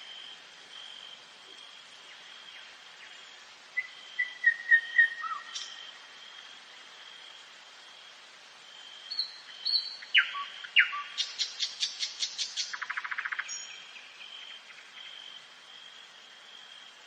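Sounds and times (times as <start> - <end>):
nightingale singing: 2.1 - 6.0, 9.0 - 15.2.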